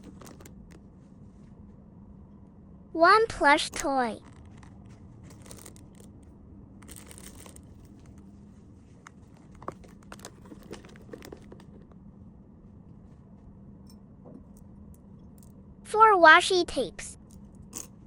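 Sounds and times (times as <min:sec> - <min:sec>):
faint steady hum: 0:00.0 - 0:18.0
plastic packaging crinkling: 0:05.3 - 0:06.1.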